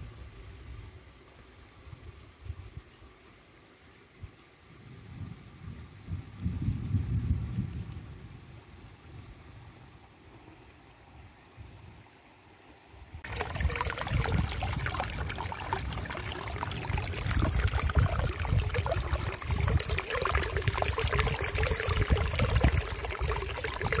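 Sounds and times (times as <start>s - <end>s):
stream splashing over rocks: 13.2s - 24.0s.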